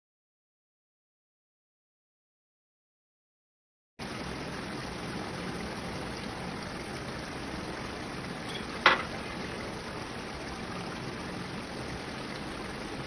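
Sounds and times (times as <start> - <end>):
food sizzling and bubbling: 4.0 - 13.0.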